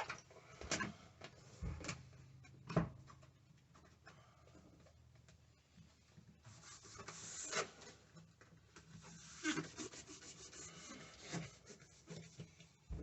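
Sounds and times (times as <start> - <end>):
rubbing and scraping strokes: 6.3 - 8.2, 8.8 - 12.8.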